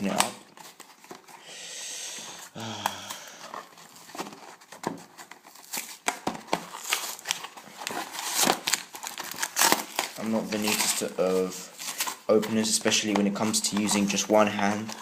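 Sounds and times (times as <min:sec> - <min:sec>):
packaging crinkling: 0:00.0 - 0:01.4, 0:02.3 - 0:15.0
packaging tearing: 0:00.0 - 0:01.4, 0:02.4 - 0:15.0.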